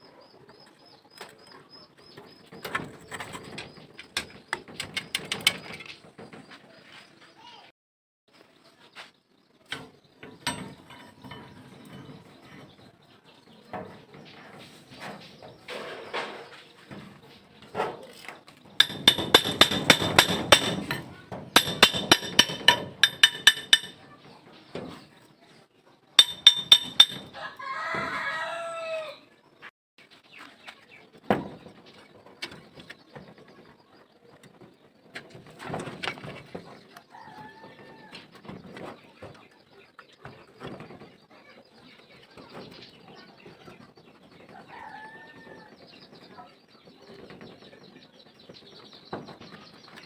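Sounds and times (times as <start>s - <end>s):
metal ringing taps: 18.8s - 24.0s, 26.2s - 27.4s.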